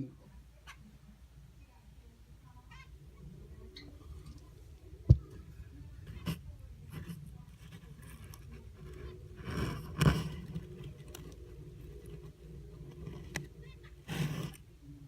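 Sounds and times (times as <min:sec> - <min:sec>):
light scrapes and taps: 0:06.0 - 0:14.6.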